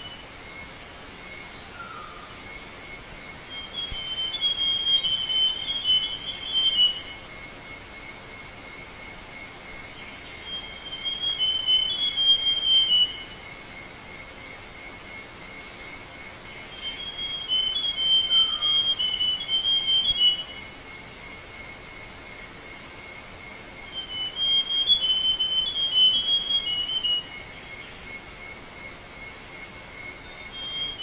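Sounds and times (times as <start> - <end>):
bird whistling song: 3.5 - 7.1, 10.4 - 13.3, 16.7 - 20.7, 23.9 - 27.4, 30.5 - 31.0.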